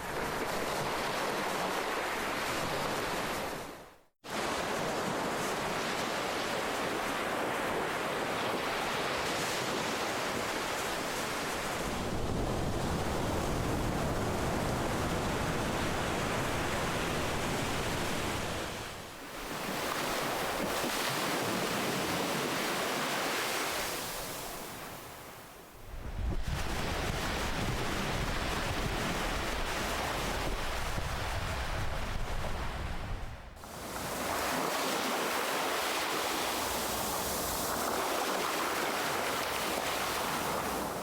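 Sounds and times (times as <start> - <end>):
ocean waves breaking: 4.4 - 25.6, 33.6 - 41.0.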